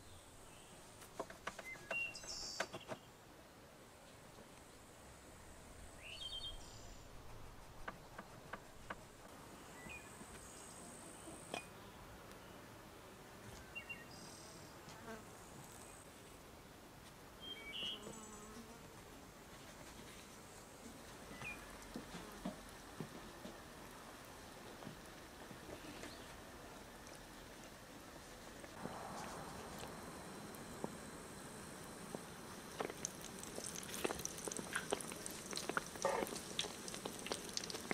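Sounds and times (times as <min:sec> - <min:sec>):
insect sounds: 0:28.2 - 0:37.9.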